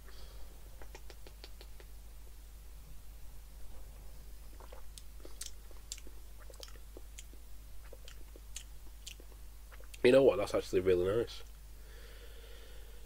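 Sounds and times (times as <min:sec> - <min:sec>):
wet mouth clicks: 0:00.8 - 0:02.0, 0:04.5 - 0:10.0.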